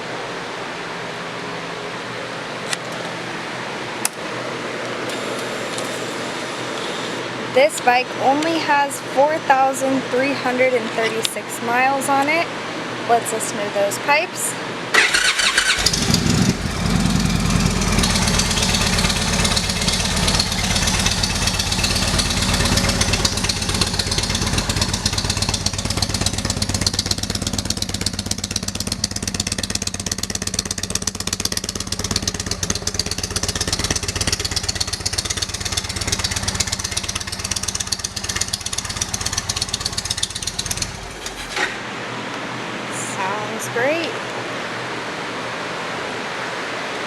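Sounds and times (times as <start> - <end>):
motorcycle engine running: 5.1 - 7.3, 15.0 - 42.0.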